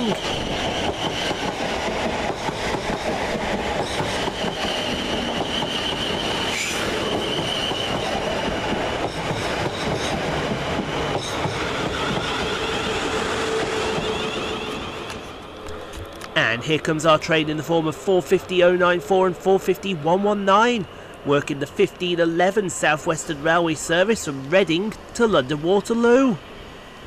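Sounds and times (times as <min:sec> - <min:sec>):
low steady train whine: 0:00.0 - 0:27.0
train wheels rumbling on rail: 0:00.0 - 0:27.0
high wheel squeal: 0:03.8 - 0:08.4.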